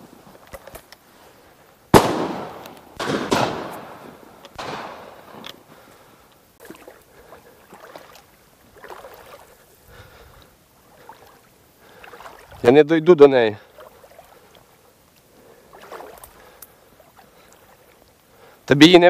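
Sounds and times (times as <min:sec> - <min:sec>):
shotgun shots echoing: 0:01.9 - 0:05.7.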